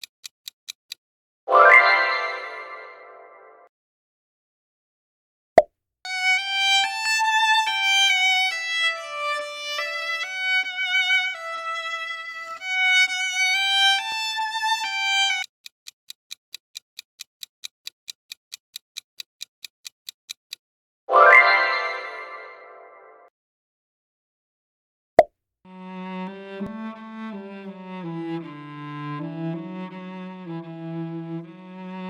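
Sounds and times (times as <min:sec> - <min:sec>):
steady timer ticking: 0:00.0 - 0:01.0, 0:14.0 - 0:20.6
solo violin slow melody: 0:06.1 - 0:15.5, 0:25.7 - 0:32.0.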